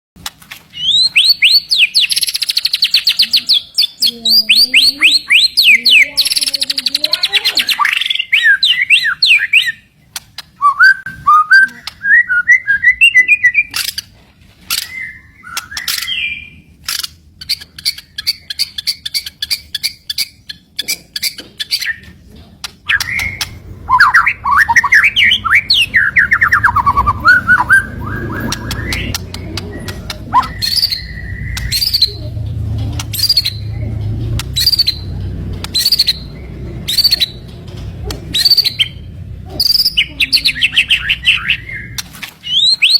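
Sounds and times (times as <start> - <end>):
bird singing fast trills: 0.8 - 13.8, 14.7 - 16.7, 22.9 - 37.5, 38.3 - 42.9.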